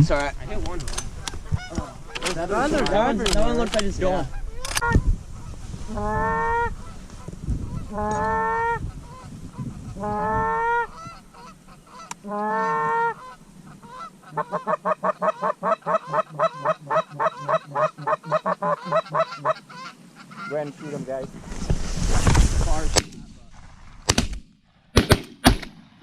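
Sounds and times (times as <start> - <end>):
goose honking: 4.3 - 21.3
goose clucking notes: 7.7 - 21.1.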